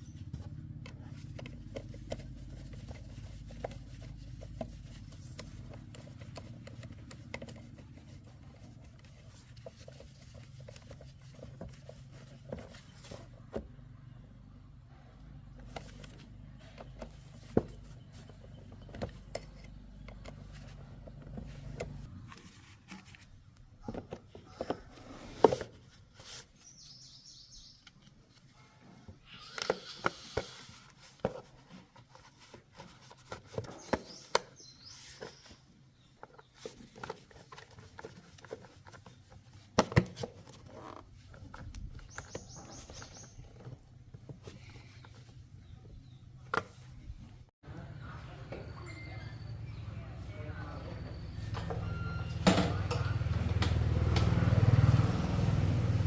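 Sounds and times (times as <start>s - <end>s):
bird chirping: 26.6s - 28.1s, 33.6s - 36.7s, 41.9s - 43.8s.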